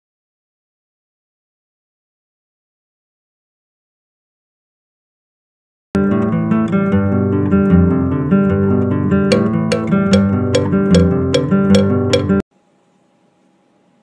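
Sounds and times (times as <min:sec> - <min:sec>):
strummed acoustic guitar: 0:06.0 - 0:12.4.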